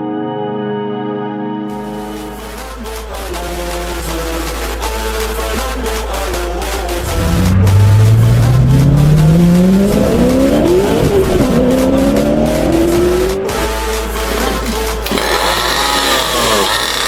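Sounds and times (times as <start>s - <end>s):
car engine revving: 7.0s - 17.0s.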